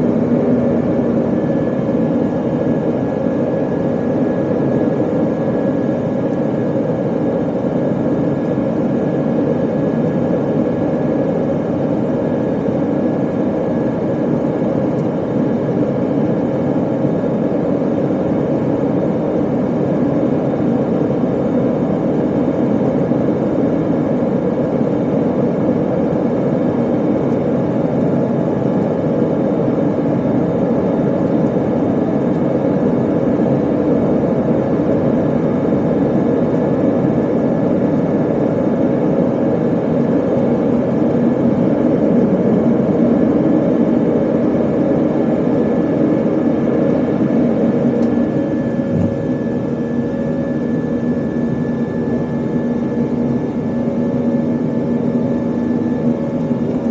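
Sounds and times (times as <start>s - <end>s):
jet engines droning: 0.0s - 56.9s.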